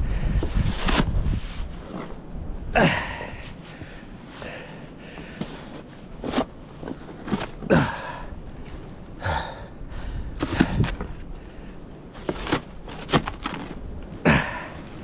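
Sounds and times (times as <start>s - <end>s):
man breathing hard: 2.8s - 5.8s, 9.1s - 11.9s.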